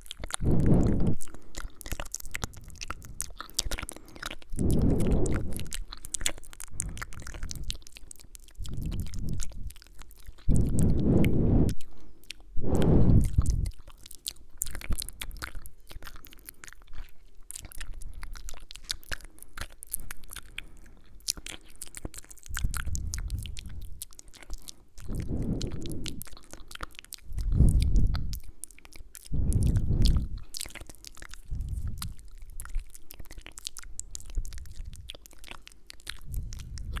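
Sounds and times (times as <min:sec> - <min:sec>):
wet mouth clicks and kisses: 0:00.0 - 0:16.5, 0:17.6 - 0:37.0
breath puffs on microphone: 0:00.4 - 0:01.6, 0:04.5 - 0:05.8, 0:08.6 - 0:09.7, 0:10.4 - 0:13.8, 0:22.5 - 0:24.0, 0:25.1 - 0:26.3, 0:27.3 - 0:28.4, 0:29.3 - 0:30.6, 0:31.4 - 0:32.2, 0:36.2 - 0:37.0.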